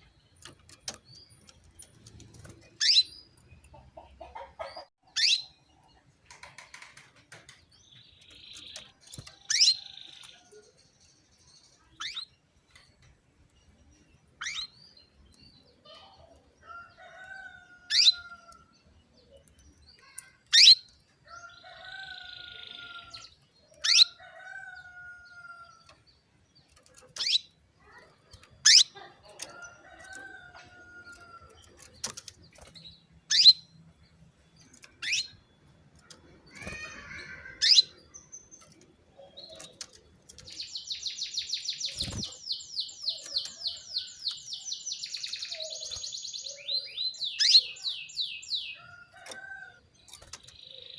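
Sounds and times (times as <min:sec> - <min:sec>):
canary sharp high calls: 0:27.2 - 0:29.6, 0:36.5 - 0:38.0.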